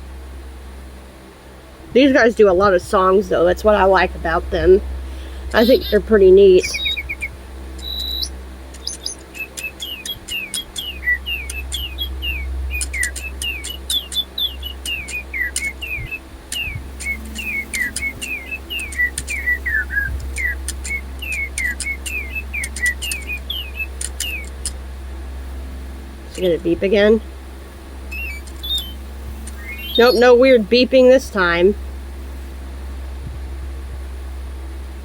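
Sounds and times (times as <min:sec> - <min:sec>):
steady low hum: 0:00.0 - 0:35.0
electronic toy birdsong chirps: 0:05.4 - 0:24.8, 0:28.0 - 0:31.6.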